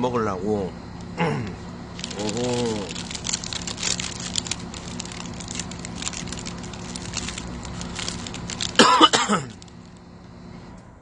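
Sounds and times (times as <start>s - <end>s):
steady low hum: 0.0s - 11.0s
fried food crust crunching: 2.0s - 10.0s
paper rustling: 2.0s - 10.0s.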